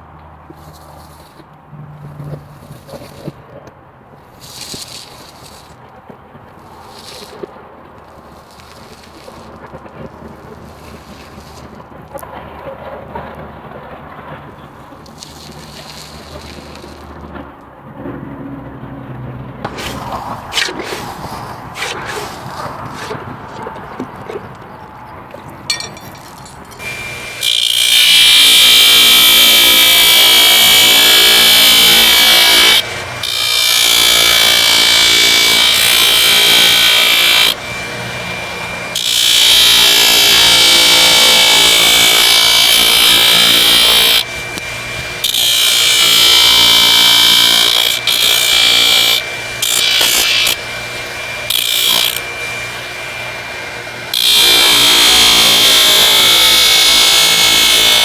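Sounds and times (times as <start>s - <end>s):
loud hissing grind: 4.3s - 5.8s, 6.5s - 11.8s, 15.1s - 17.3s, 19.7s - 24.8s, 25.7s - 58.0s
grinder motor running: 19.7s - 24.8s, 25.7s - 58.0s.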